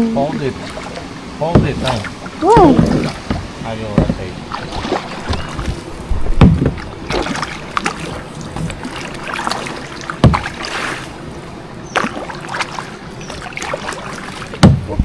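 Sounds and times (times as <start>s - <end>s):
water splashing around boat: 0.0s - 15.0s
heavy thump: 1.5s - 4.4s, 5.2s - 6.8s, 10.2s - 10.6s, 14.6s - 15.0s
knocks: 1.5s - 4.4s, 6.4s - 6.8s, 10.2s - 10.6s, 14.6s - 15.0s.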